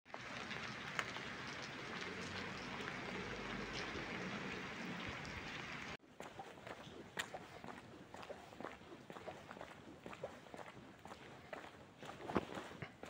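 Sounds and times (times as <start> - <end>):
rain on wet pavement: 0.1 - 6.0
raindrop ticks: 0.1 - 6.0.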